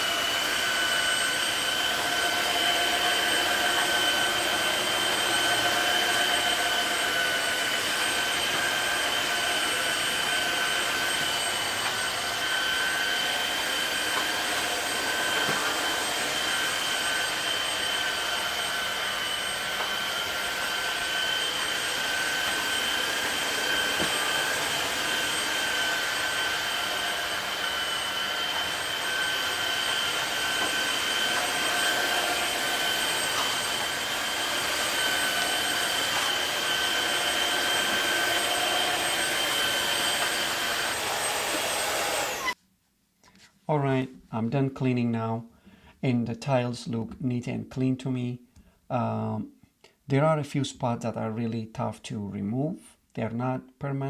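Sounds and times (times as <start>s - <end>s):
vacuum mop motor whining: 0.0s - 42.6s.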